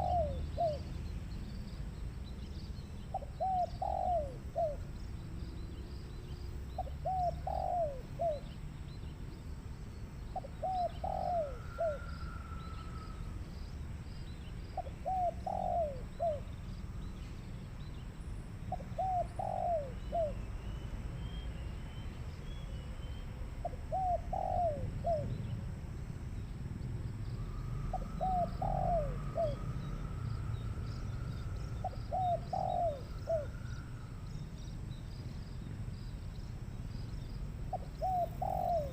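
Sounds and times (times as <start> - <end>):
dove cooing: 0.0 - 1.0, 3.1 - 4.9, 6.8 - 8.6, 10.3 - 13.3, 14.8 - 16.6, 18.6 - 20.4, 23.6 - 25.5, 27.4 - 34.3, 37.7 - 38.9
faint bird calls: 0.0 - 1.8, 2.6 - 25.6, 27.2 - 38.9.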